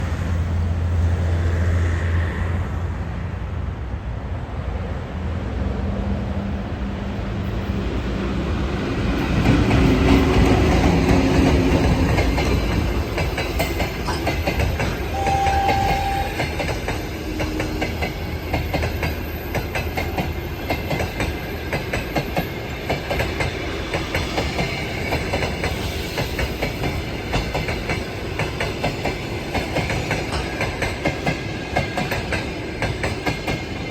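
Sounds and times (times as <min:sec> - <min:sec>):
electric locomotive passing: 0:00.0 - 0:33.9
train wheels clacking over rail joints: 0:09.2 - 0:33.9.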